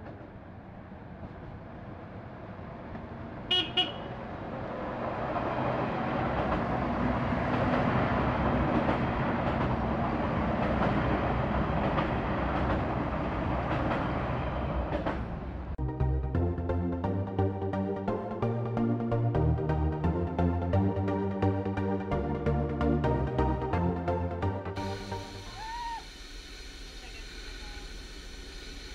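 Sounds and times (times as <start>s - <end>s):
train passing rumble: 0.0s - 28.9s
train horn toots: 3.5s - 4.2s.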